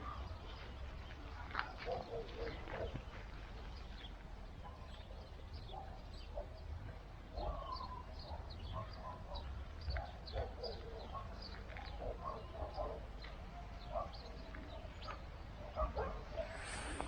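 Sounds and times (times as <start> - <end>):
birds chirping: 10.3 - 17.0.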